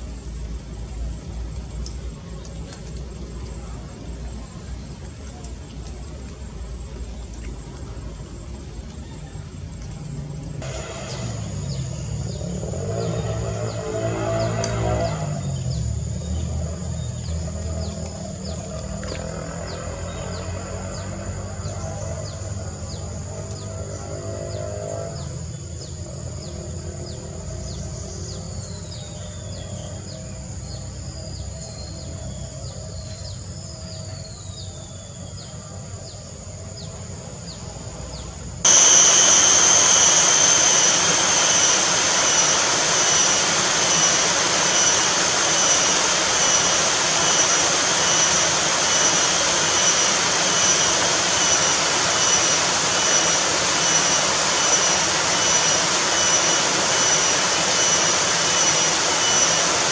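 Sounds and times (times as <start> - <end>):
low hum: 0.0 - 34.1, 35.3 - 59.9
loud steady rushing noise: 10.5 - 28.8, 38.5 - 59.9
high pulsing buzz: 10.6 - 33.9, 35.4 - 59.9.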